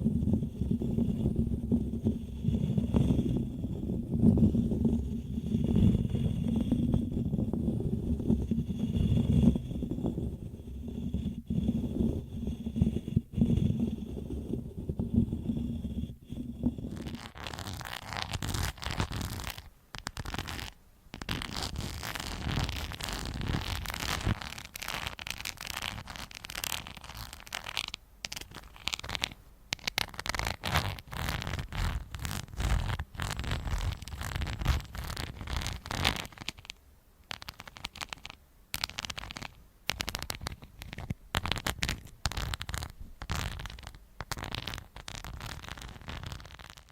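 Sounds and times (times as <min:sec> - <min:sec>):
scratching against microphone: 0:00.0 - 0:46.9.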